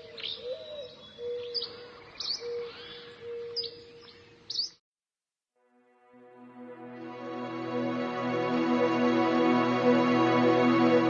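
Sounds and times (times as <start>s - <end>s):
birds chirping: 0.0s - 4.8s.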